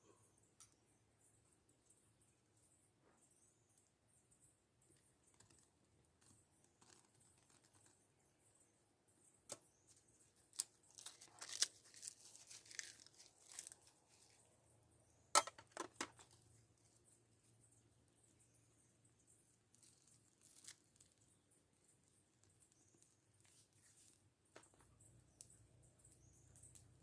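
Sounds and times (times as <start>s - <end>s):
crinkling and tearing: 10.5s - 14.4s, 19.8s - 21.2s.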